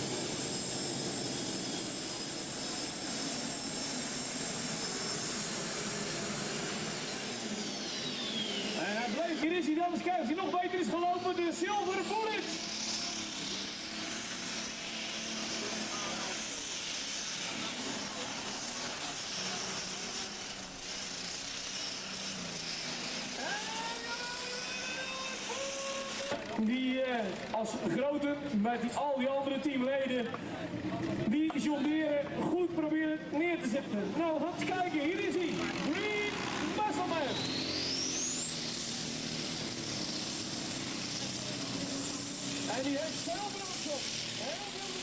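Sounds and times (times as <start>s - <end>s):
tractor engine running hard: 0.0s - 28.7s, 33.2s - 45.0s
high turbine-like whine: 0.0s - 45.0s
tractor engine running: 33.3s - 45.0s.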